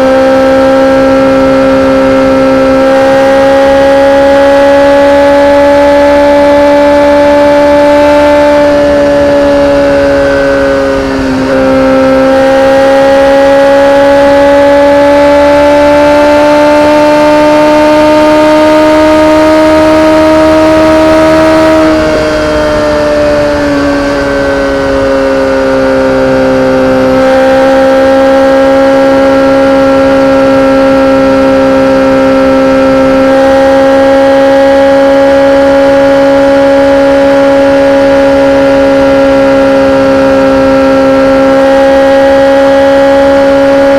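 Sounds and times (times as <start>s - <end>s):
motorcycle engine running high: 0.0s - 43.9s.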